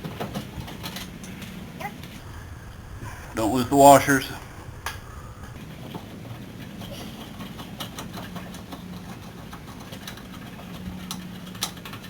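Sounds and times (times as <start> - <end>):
low hum: 2.1 - 6.6.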